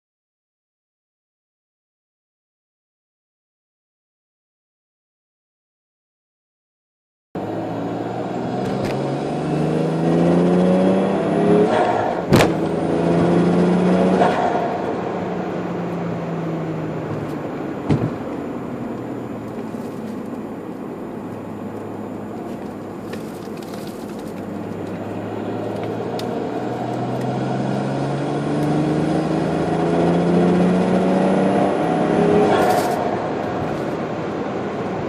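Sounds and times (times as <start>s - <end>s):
turbocharged car engine revving: 7.4s - 19.7s, 24.4s - 35.0s.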